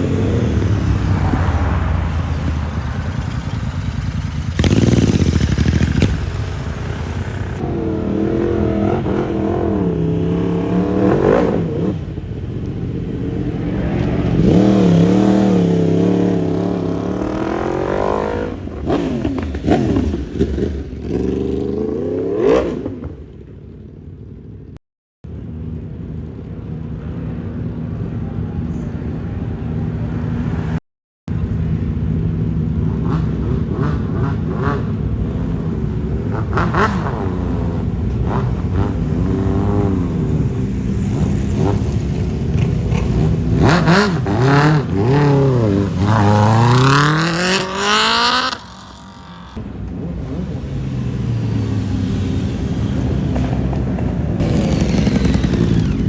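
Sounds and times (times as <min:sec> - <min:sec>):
vehicle engines revving: 0:00.0 - 0:23.7, 0:31.4 - 0:56.0.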